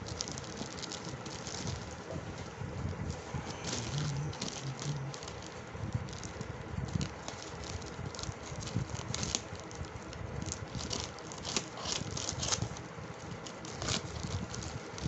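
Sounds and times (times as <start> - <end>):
plastic packaging rustling: 0.0 - 15.0.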